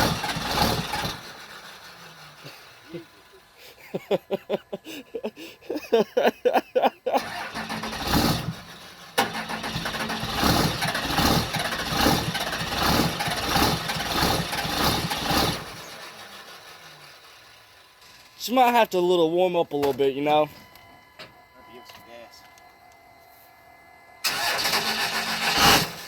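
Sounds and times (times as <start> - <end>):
diesel engine cranking and sputtering: 0.0 - 4.0, 7.2 - 18.5, 24.2 - 26.0.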